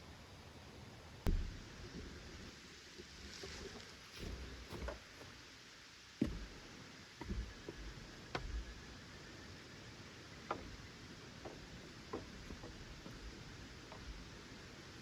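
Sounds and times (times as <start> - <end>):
faint steady background: 0.0 - 15.0
light knocks and taps: 6.2 - 6.6, 7.2 - 9.0, 10.4 - 14.8.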